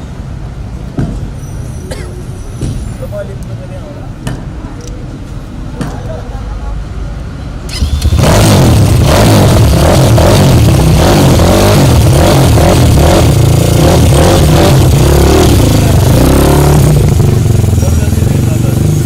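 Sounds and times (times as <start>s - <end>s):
motorcycle engine revving: 7.7s - 19.0s.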